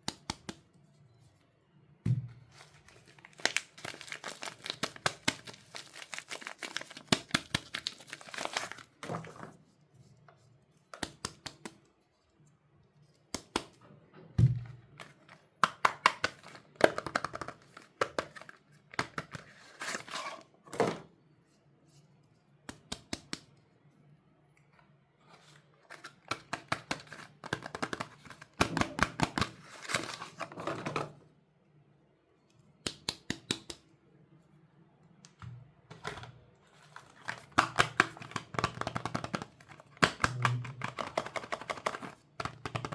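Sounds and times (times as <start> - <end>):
wrappers tearing and crinkling: 2.9 - 8.9.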